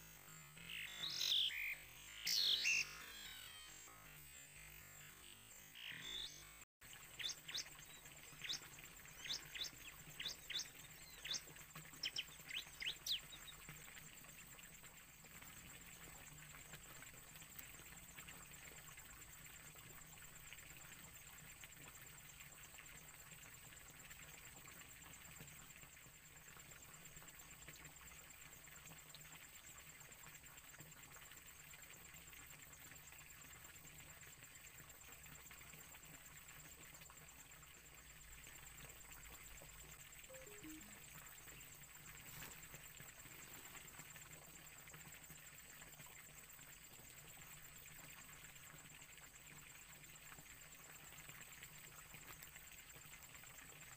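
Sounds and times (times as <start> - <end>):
faint outdoor ambience: 30.9 - 48.4
bird chirps falling notes: 40.3 - 41.0
high-pitched tone: 40.3 - 41.0.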